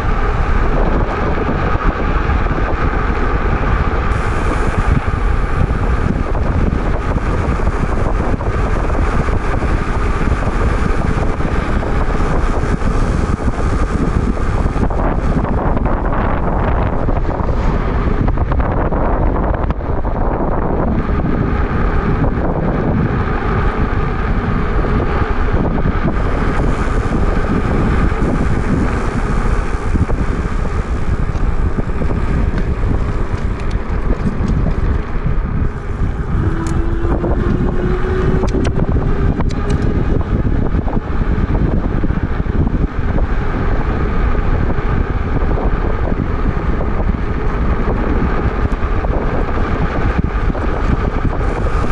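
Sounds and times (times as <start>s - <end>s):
wind buffeting microphone: 0.0s - 51.9s
faint rising whine: 22.1s - 42.0s.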